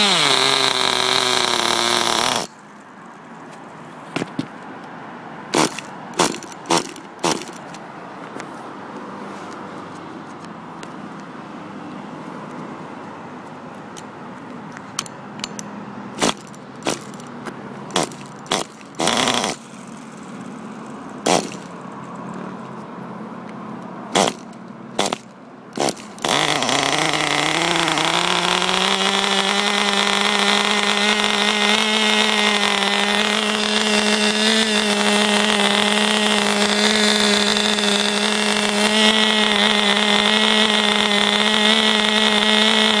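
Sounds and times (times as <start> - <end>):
small nitro engine running: 0.0 - 2.5, 5.6 - 7.6, 17.9 - 20.3, 21.2 - 21.7, 24.2 - 25.2, 25.8 - 43.0.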